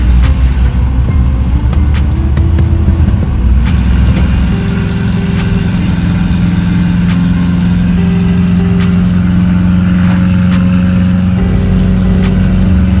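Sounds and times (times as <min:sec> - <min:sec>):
car engine running steadily: 0:00.0 - 0:13.0.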